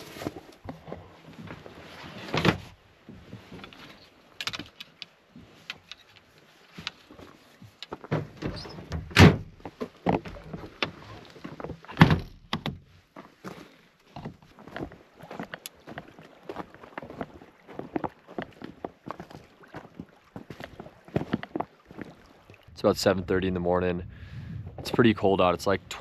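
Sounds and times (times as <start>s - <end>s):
loud thunks: 8.1s - 9.6s.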